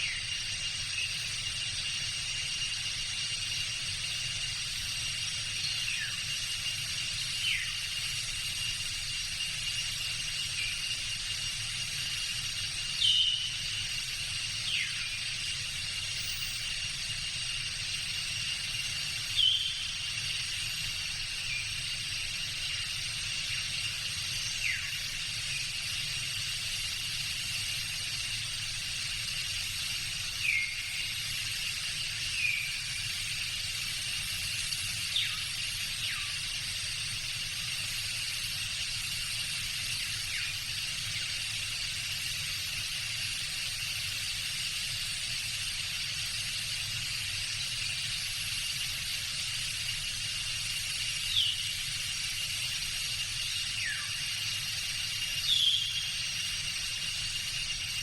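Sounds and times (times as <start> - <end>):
insects droning: 0.0 - 58.0
bird calls: 19.4 - 20.0, 55.4 - 56.1.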